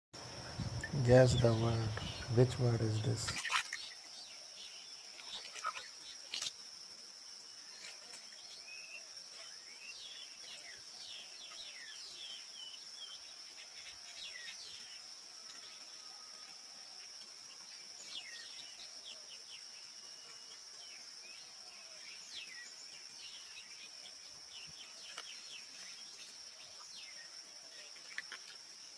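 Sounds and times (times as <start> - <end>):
insect trill: 0.2 - 28.9
bird chirps: 0.3 - 6.2.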